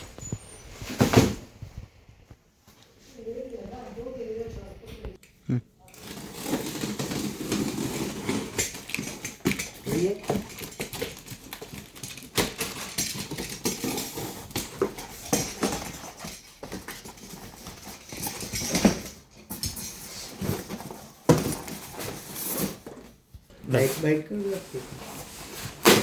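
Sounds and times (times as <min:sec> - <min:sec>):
packaging rustling and knocking: 0:06.0 - 0:23.2.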